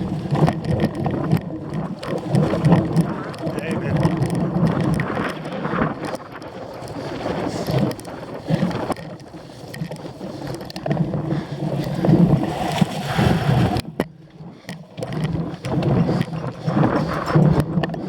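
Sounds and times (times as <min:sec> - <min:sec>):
bike rumbling over rough ground: 0:00.0 - 0:18.0
wind buffeting microphone: 0:00.0 - 0:18.0.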